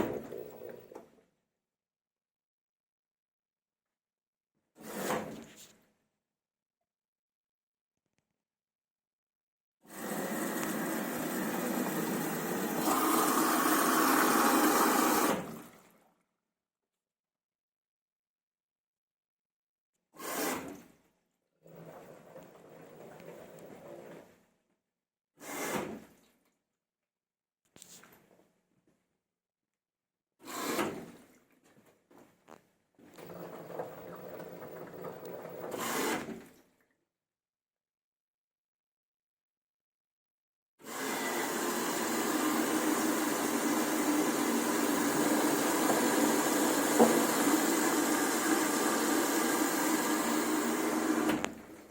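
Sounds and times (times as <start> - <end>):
washing machine whirring: 0.0 - 1.0, 10.0 - 15.8, 33.1 - 35.9, 40.9 - 51.9
washing machine drum scraping clatter: 33.2 - 35.8.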